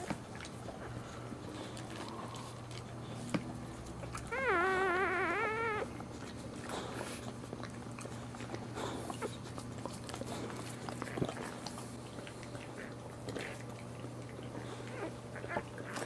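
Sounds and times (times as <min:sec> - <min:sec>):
dog whining: 0:04.0 - 0:07.2, 0:14.5 - 0:16.0.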